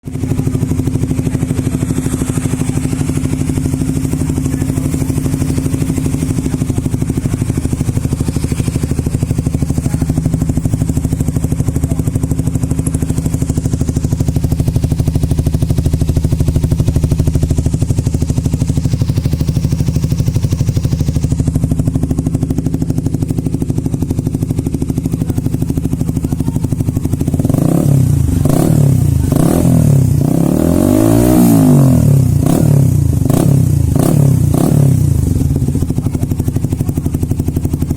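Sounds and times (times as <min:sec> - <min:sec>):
motorcycle engine idling and revving: 0:00.0 - 0:37.9.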